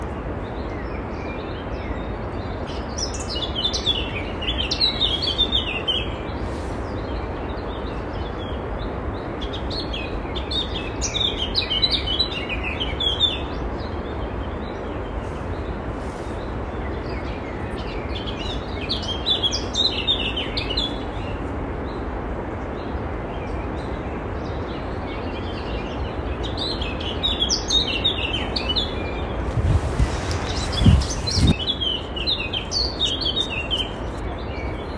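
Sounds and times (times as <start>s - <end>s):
steady hiss: 4.7s - 9.8s, 14.8s - 17.1s, 26.4s - 34.4s
songbird twittering: 25.4s - 34.9s.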